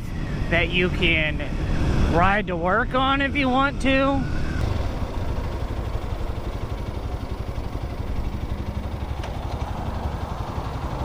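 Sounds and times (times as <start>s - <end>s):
motorcycle engine running at low revs: 4.4s - 11.0s.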